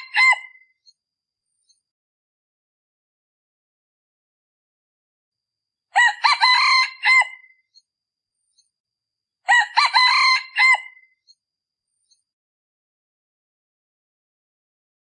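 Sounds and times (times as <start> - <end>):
junglefowl crowing: 0.0 - 0.6, 6.0 - 7.5, 9.5 - 11.1.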